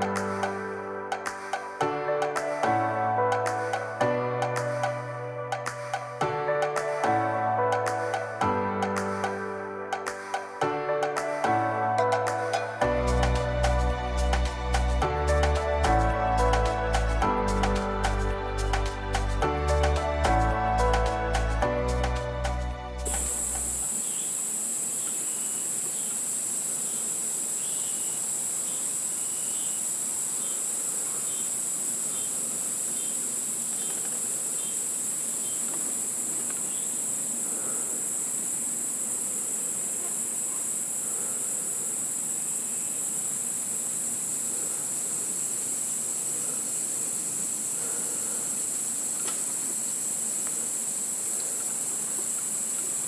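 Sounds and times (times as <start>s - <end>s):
insect chorus: 23.1s - 53.0s.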